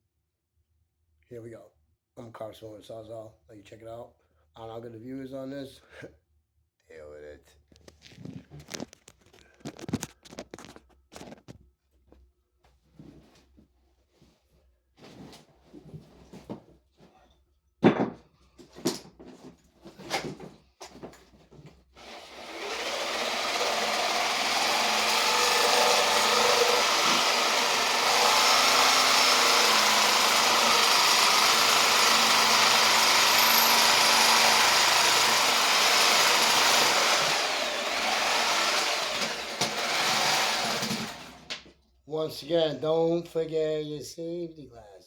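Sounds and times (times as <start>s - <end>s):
reciprocating saw cutting wood: 22.0s - 41.5s.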